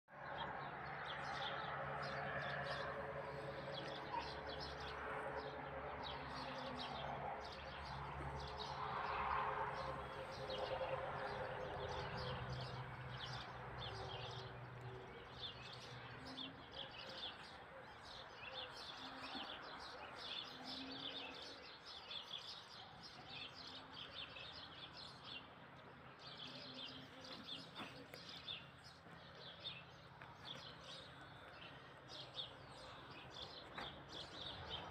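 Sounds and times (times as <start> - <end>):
small birds chirping and twittering: 0.1 - 34.9.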